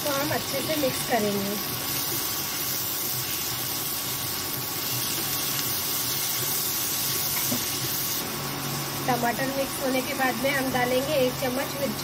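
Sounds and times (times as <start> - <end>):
vegetables sizzling on a griddle: 0.0 - 12.0.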